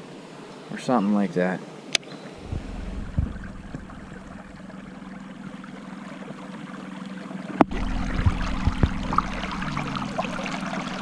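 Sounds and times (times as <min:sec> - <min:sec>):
creek water flowing: 0:02.2 - 0:11.0
steady low hum: 0:02.4 - 0:11.0.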